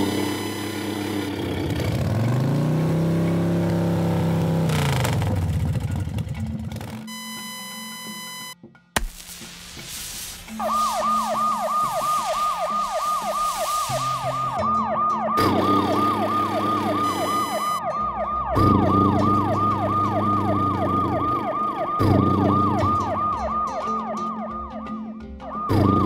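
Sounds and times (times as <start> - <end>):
background music with low beat: 5.8 - 26.0
fast yelping siren: 10.6 - 26.0.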